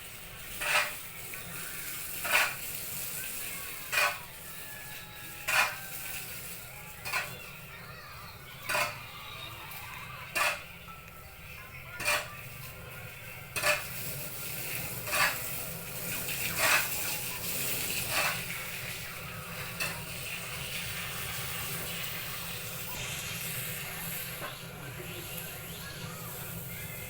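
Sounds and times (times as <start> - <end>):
tool scraping sawdust mixture: 0.4 - 2.7, 3.5 - 7.5, 8.6 - 9.0, 10.2 - 10.6, 12.0 - 12.4, 13.5 - 19.0
steady hiss: 20.4 - 27.0.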